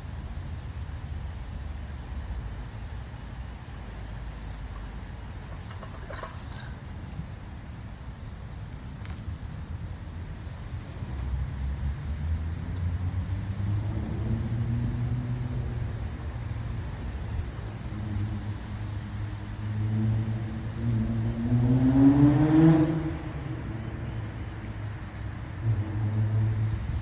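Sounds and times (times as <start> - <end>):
vehicle engine revving: 17.8 - 24.3.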